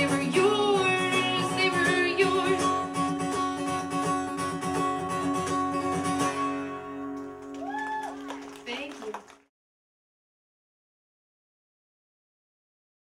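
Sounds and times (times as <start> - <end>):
woman singing: 0.0 - 2.9
acoustic guitar strumming: 0.0 - 7.5.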